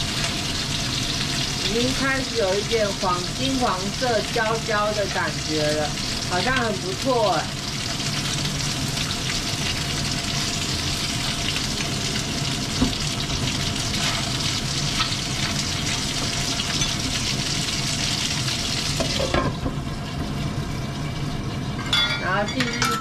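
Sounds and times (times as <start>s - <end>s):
chicken wings sizzling in oil: 0.0s - 23.0s.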